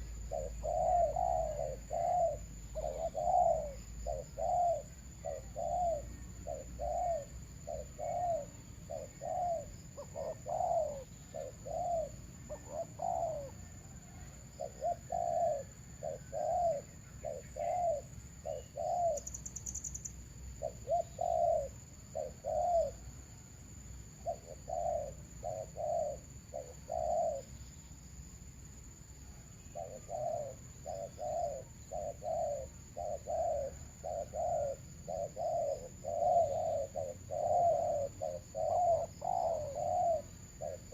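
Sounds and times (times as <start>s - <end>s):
doves cooing: 0.0s - 19.9s, 20.6s - 23.2s, 24.2s - 27.6s, 29.7s - 40.9s.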